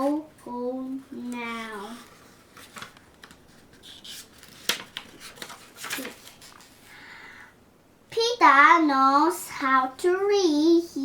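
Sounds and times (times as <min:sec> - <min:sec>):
paper rustling: 0:00.0 - 0:07.0.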